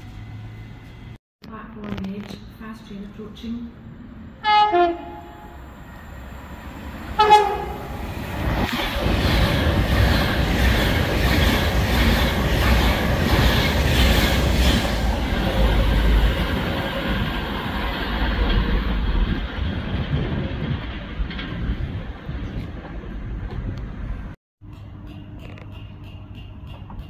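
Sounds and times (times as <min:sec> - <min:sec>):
train rushing past: 0:03.2 - 0:24.4
two-tone train horn: 0:04.4 - 0:05.7, 0:07.2 - 0:08.0.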